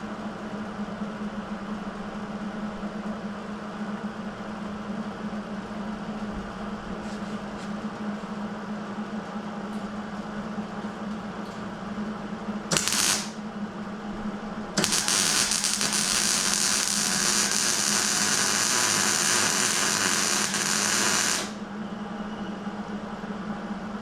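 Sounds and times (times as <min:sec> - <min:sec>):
steady low hum: 0:00.0 - 0:24.0
plasma cutter hissing: 0:12.7 - 0:13.4, 0:14.8 - 0:21.6.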